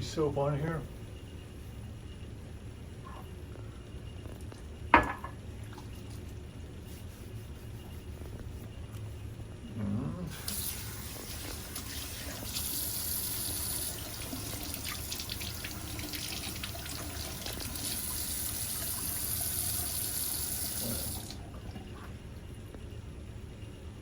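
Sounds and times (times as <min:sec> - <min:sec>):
faucet running into sink: 0:10.3 - 0:21.5.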